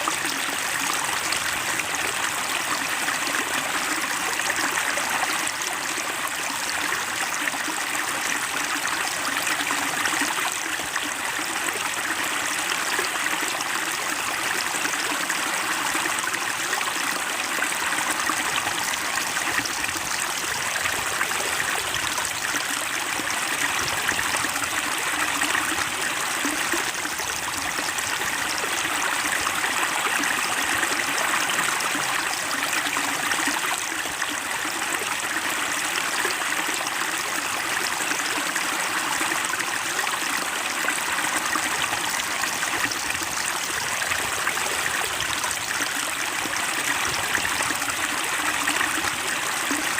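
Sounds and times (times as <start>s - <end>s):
stream babbling: 0.0s - 49.9s.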